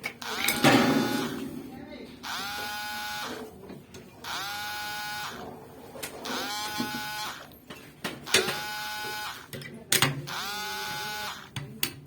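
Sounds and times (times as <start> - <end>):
cordless drill whirring: 0.2 - 1.4, 2.2 - 3.4, 4.2 - 5.4, 6.2 - 7.5, 8.3 - 9.5, 10.3 - 11.5.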